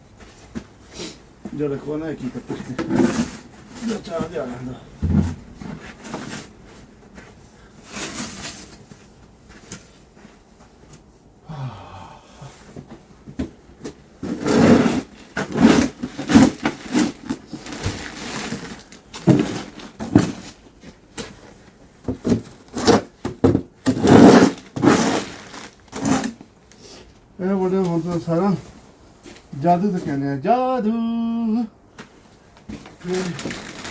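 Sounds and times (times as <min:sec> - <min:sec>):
snow shovel scraping snow: 0:14.2 - 0:17.2, 0:23.9 - 0:26.3.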